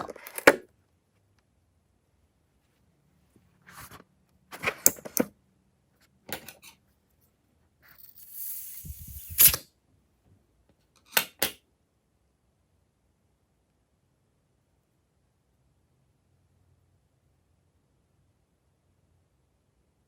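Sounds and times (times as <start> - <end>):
hiss: 8.1 - 9.6.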